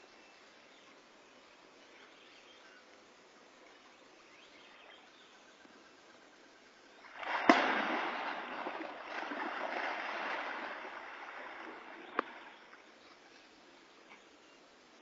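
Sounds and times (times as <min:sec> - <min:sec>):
churning splashing water: 0:07.0 - 0:12.7
heavy splash in water: 0:07.1 - 0:12.4.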